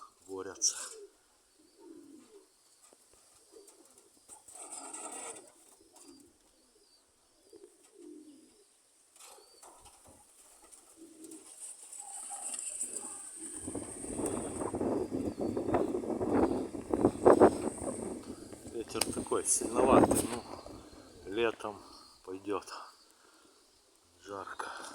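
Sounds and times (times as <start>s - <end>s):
pigeons cooing: 0.0s - 24.8s
wind buffeting microphone: 13.3s - 21.5s.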